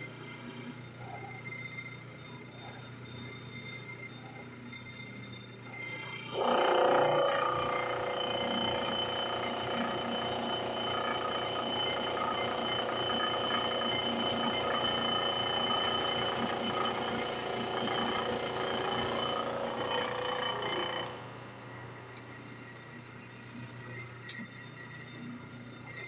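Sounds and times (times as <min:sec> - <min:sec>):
grinding wheel on metal: 0:06.2 - 0:22.4
grinder motor whining: 0:06.2 - 0:23.1.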